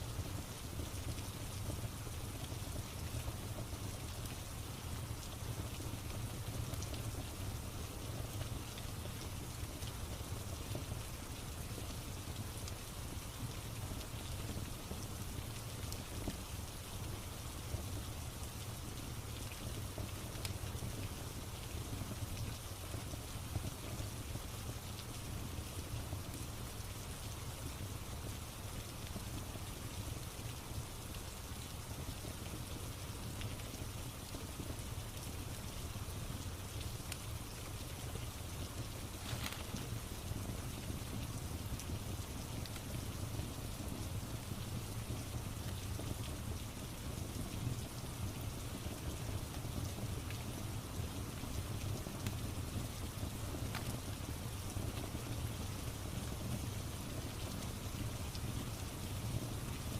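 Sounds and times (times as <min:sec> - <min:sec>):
steady rain: 0:00.0 - 0:59.9
wood fire crackling: 0:00.1 - 0:59.9.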